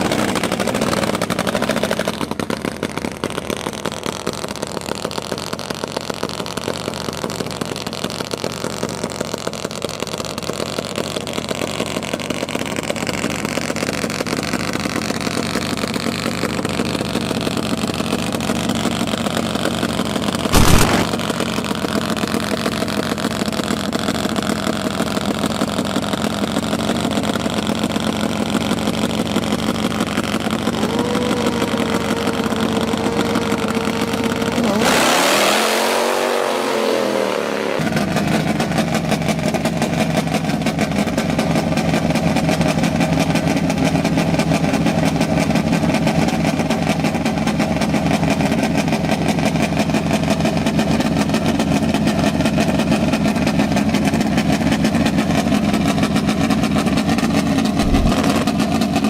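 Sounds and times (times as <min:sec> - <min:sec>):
motorcycle engine running: 0:00.0 - 0:59.0
loud rushing burst: 0:20.6 - 0:21.4, 0:57.8 - 0:58.4
sharp bang: 0:20.6 - 0:21.4.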